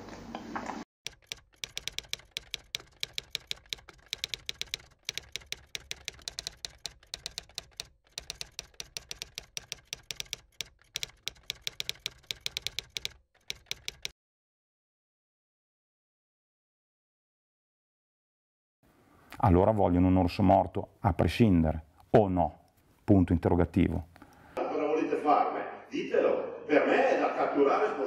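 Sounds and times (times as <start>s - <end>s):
typewriter keys clacking: 1.1s - 14.1s.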